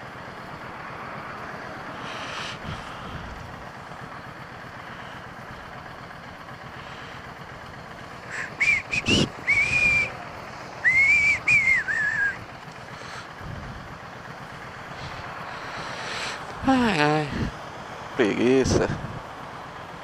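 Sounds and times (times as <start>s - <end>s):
motorcycle road noise: 0.0s - 20.0s
person whistling a tune: 8.4s - 10.2s, 10.8s - 12.4s.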